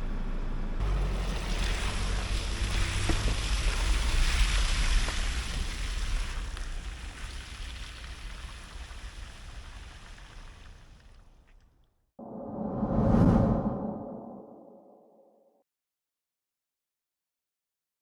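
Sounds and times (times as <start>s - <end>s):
wind rumbling on microphone: 12.2s - 14.9s.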